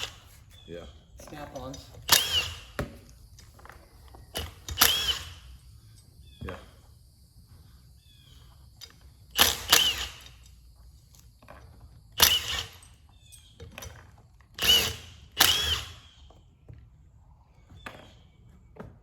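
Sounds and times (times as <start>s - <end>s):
power tool whining in bursts: 1.3s - 5.8s, 9.2s - 10.6s, 12.1s - 16.4s.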